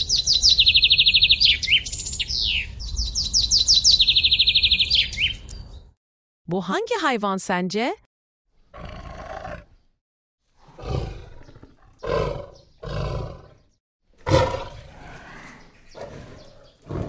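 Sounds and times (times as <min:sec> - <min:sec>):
lion roaring: 0:08.7 - 0:09.7, 0:10.6 - 0:17.0.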